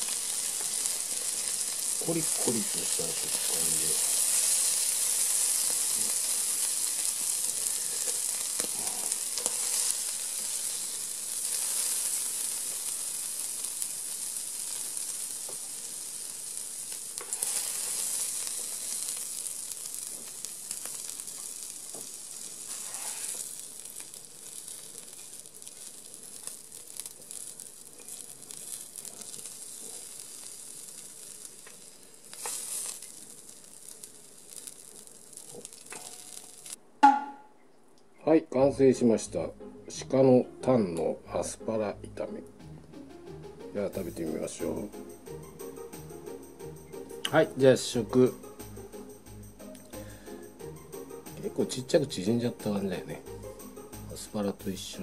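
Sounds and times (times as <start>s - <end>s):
food sizzling in a pan: 0.0s - 36.8s, 43.8s - 55.0s
spatula scraping pan: 22.7s - 23.5s.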